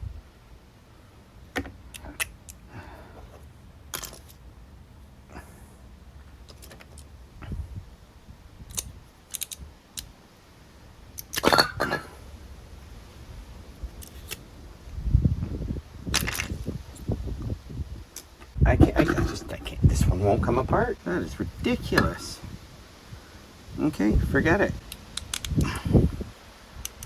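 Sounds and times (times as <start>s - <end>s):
tools clicking on metal parts: 8.7s - 10.1s, 24.8s - 25.8s.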